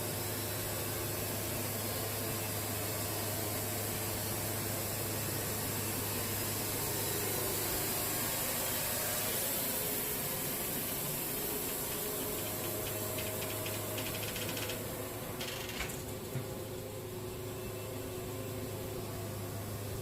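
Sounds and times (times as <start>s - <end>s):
band sawmill running: 0.0s - 20.0s
fast ticking rattle: 11.3s - 16.4s.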